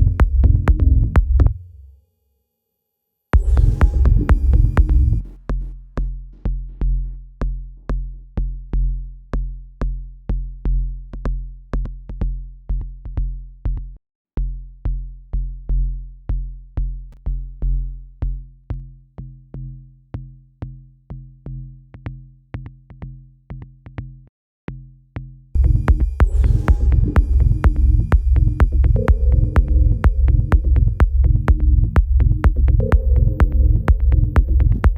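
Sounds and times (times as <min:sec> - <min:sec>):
electronic kick drum: 0:00.0 - 0:01.6, 0:03.4 - 0:10.0, 0:25.6 - 0:34.9.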